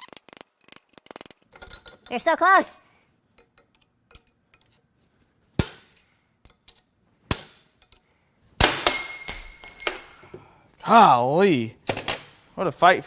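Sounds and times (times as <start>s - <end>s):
metal strikes: 5.6s - 6.0s.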